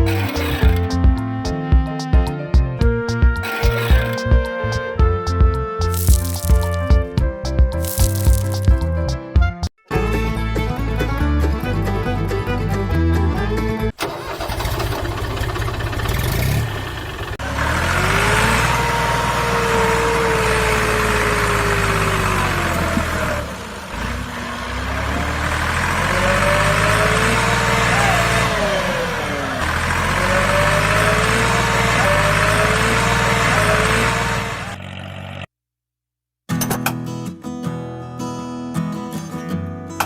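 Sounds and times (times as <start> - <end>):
music: 0.0 - 13.8.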